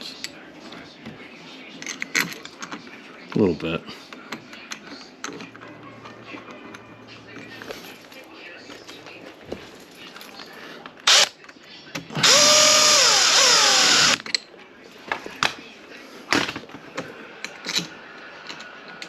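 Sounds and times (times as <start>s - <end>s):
cordless drill driving screw: 11.1s - 11.3s, 12.2s - 14.2s.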